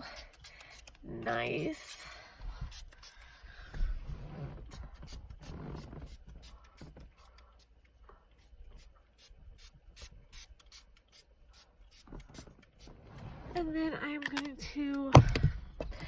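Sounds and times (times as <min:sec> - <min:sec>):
spray bottle squirting: 0:00.0 - 0:02.0, 0:02.7 - 0:03.3, 0:04.6 - 0:07.4, 0:08.4 - 0:13.0
spray trigger clicking: 0:00.2 - 0:01.0.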